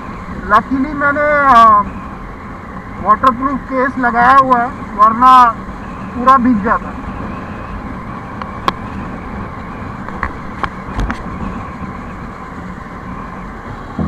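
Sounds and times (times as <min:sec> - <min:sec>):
motorcycle running: 0:00.0 - 0:14.0
wind and road noise: 0:00.0 - 0:14.0.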